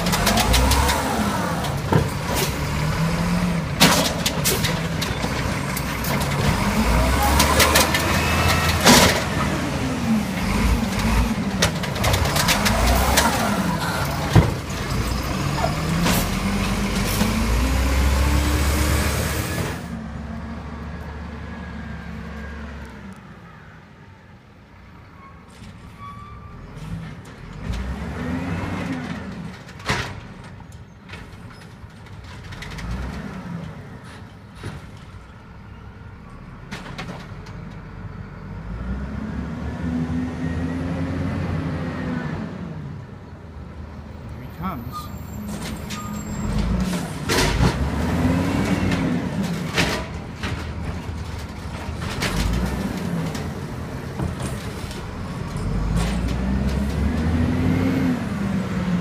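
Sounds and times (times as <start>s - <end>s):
truck diesel engine revving: 0.0s - 22.6s, 46.0s - 59.0s.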